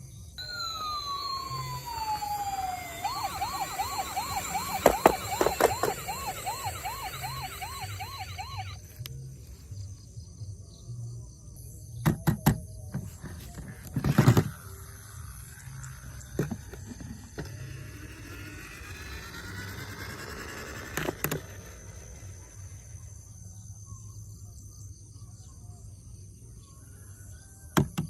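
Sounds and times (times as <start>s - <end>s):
toy siren whine and warble: 0.3s - 9.9s, 12.9s - 24.3s
sharp clicks: 0.4s - 9.1s.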